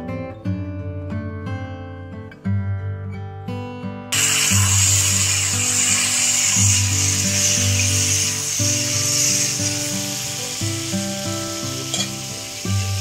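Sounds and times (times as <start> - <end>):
background music: 4.2 - 13.0
food sizzling in oil: 4.2 - 13.0
metal spatula stirring: 11.8 - 12.4.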